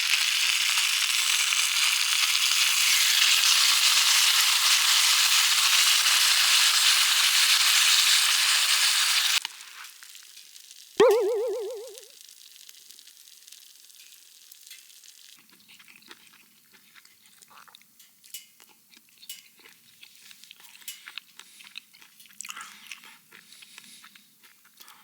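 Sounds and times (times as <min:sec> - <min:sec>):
wavering tone: 0:11.0 - 0:12.1.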